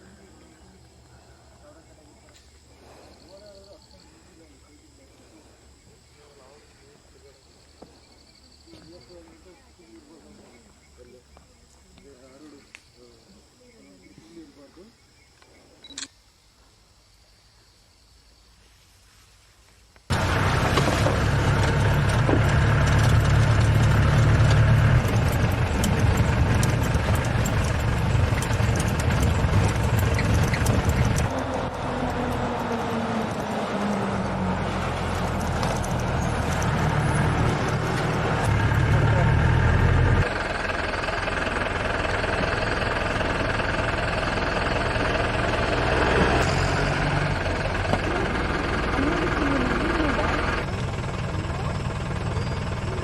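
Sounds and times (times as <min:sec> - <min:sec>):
vehicle body rattling: 0:20.1 - 0:53.0
vehicle engine running: 0:20.1 - 0:53.0.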